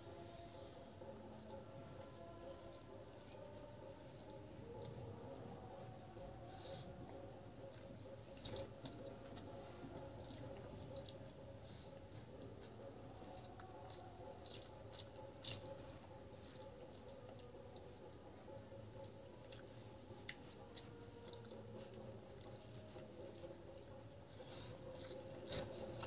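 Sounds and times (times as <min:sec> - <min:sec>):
low steady hum: 0:00.0 - 0:26.0
wet chewing smacks: 0:11.9 - 0:18.2, 0:19.0 - 0:24.0, 0:24.7 - 0:26.0
fingers squishing rice: 0:19.4 - 0:26.0.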